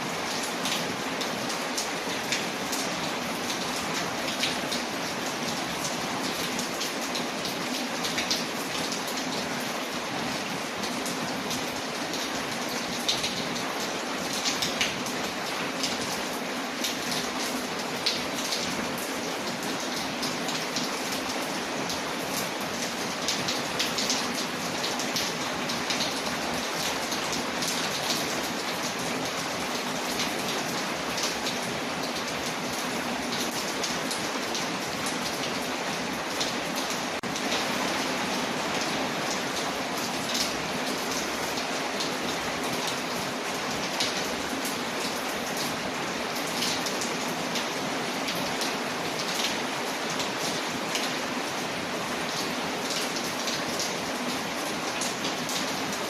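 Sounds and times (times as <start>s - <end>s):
rain on a window: 0.0s - 56.0s.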